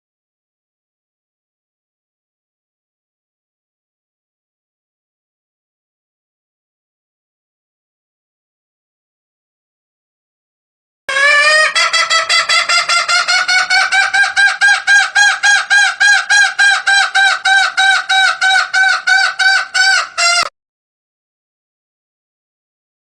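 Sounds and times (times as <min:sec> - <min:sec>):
junglefowl clucking: 0:11.1 - 0:20.5.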